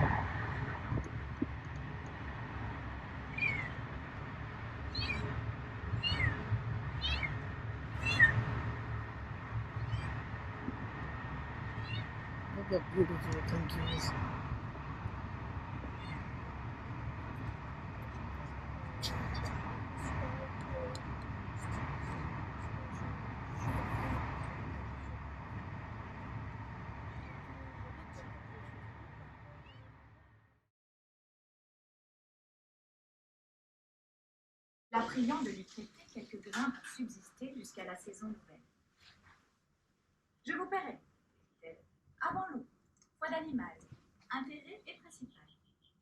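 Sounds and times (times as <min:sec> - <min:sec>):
low rumble: 0:00.0 - 0:30.3.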